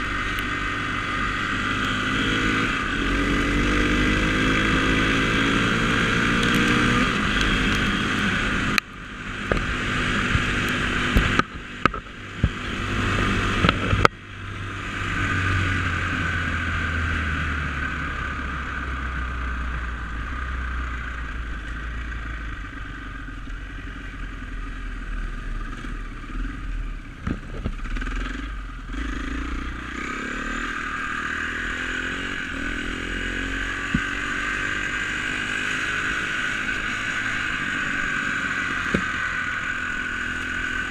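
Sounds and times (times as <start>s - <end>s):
dirt bike engine revving: 0.0s - 19.2s, 27.8s - 40.9s.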